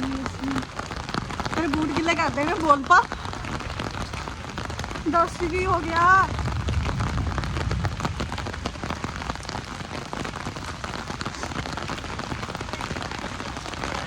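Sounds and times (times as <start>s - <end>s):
steady rain falling: 0.0s - 14.0s
low rumble: 3.5s - 10.5s.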